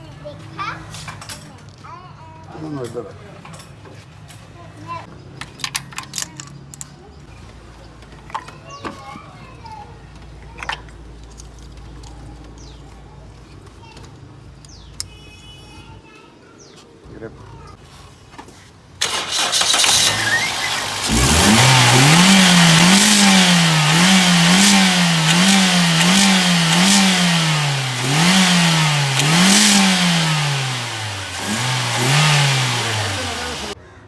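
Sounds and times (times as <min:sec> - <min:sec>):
car engine cranking and starting: 0:19.0 - 0:33.8
car engine revving: 0:19.0 - 0:33.8.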